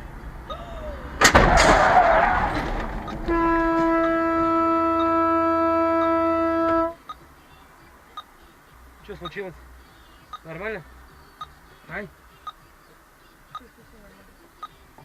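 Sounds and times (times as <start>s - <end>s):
car crash: 0.5s - 4.8s
metal crunching: 1.2s - 6.8s
car horn: 1.8s - 7.2s.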